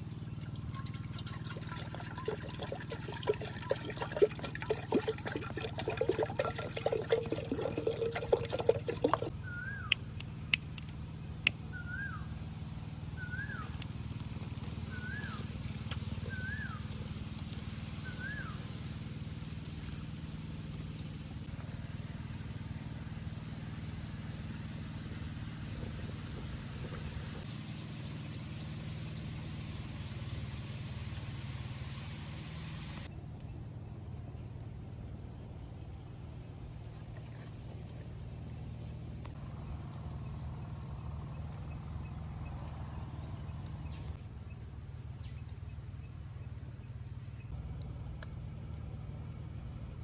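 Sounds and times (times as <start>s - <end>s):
water pouring and splashing: 0.0s - 9.4s, 13.9s - 33.1s
low background hum: 0.0s - 50.0s
bird whistling call: 9.4s - 10.0s, 11.7s - 12.3s, 13.2s - 13.8s, 14.9s - 15.5s, 16.3s - 16.9s, 18.1s - 18.6s.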